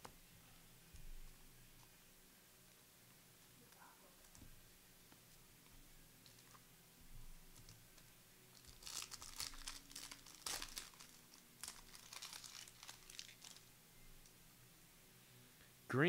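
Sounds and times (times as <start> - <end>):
card pack wrapper tearing and crinkling: 8.5 - 13.7.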